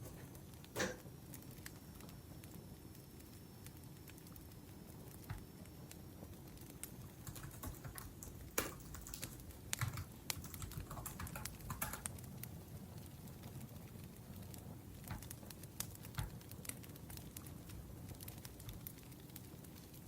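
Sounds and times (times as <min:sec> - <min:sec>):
typing on laptop keyboard: 0:06.8 - 0:12.3, 0:15.0 - 0:16.5.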